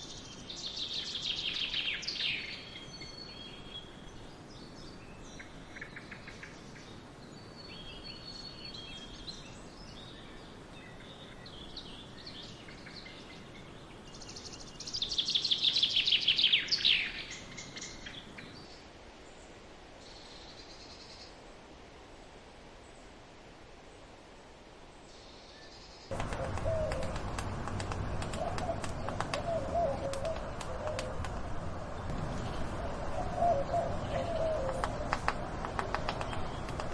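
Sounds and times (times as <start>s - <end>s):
songbirds calling and chirping: 0.0s - 23.2s, 23.8s - 36.9s.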